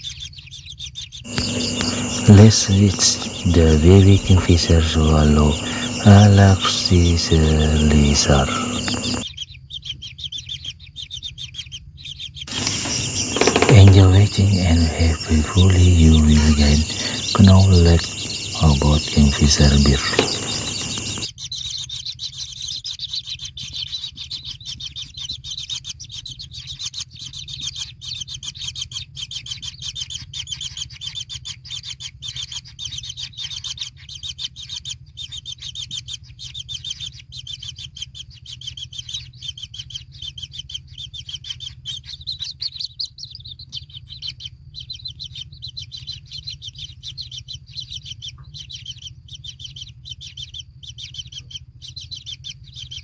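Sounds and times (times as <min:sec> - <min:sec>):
bird chicks chirping: 0:00.0 - 0:53.0
low steady hum: 0:01.3 - 0:09.2, 0:12.5 - 0:21.3.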